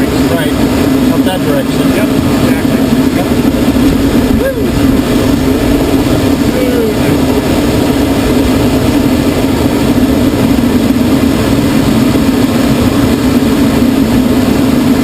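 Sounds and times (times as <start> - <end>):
plane engine and propeller drone: 0.0 - 15.0.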